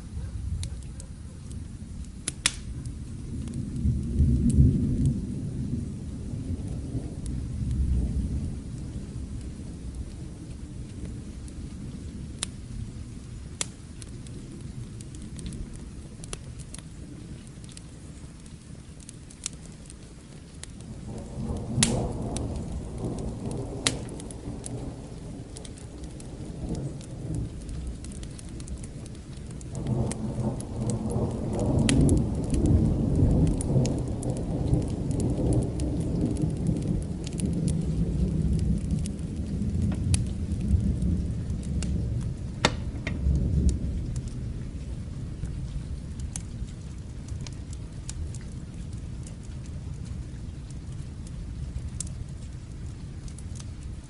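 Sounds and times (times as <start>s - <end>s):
distant thunder rolling: 0.0s - 13.6s, 20.8s - 50.3s
fire crackling: 0.0s - 54.0s
steady rain: 0.0s - 54.0s.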